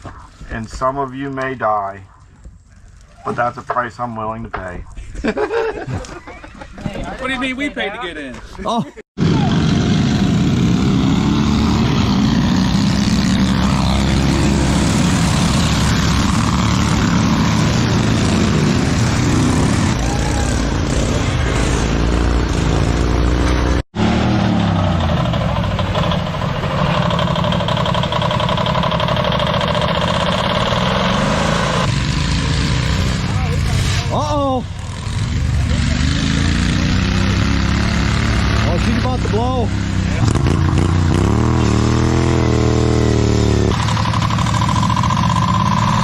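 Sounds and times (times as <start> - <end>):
lawn mower engines revving: 9.2 - 46.0.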